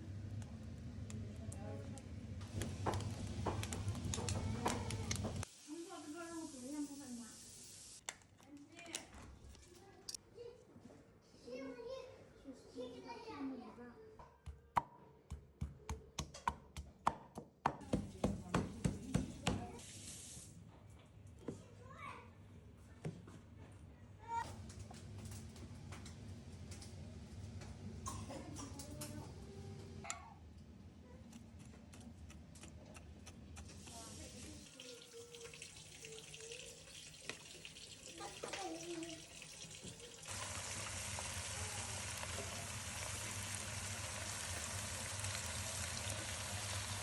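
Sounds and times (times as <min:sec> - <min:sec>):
tap water running into sink: 0:33.9 - 0:47.0.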